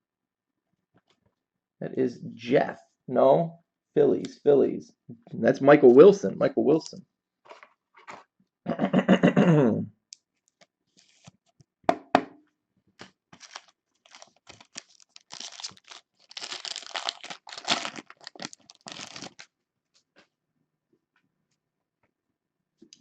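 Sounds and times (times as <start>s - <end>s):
cards clicking and rustling: 13.0s - 19.4s
wrapper tearing and crinkling: 13.4s - 19.5s.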